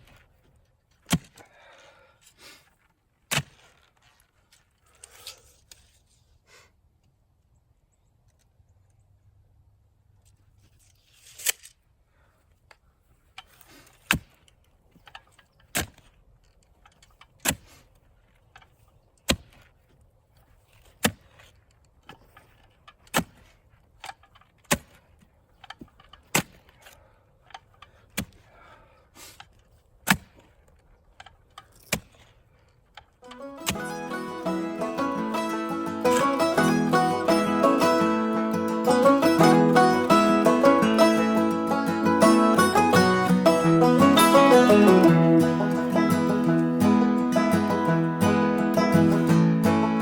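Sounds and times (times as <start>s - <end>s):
hammer strikes: 33.3s - 50.0s.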